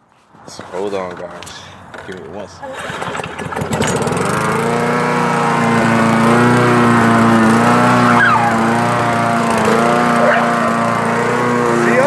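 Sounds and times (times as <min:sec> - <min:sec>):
lawn mower engine running: 0:02.6 - 0:12.0.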